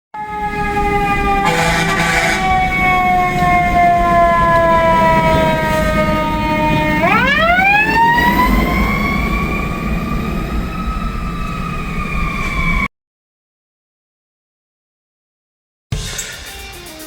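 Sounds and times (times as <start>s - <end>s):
fire truck siren: 0.1s - 12.9s
low rumble of engine and traffic: 0.3s - 12.9s.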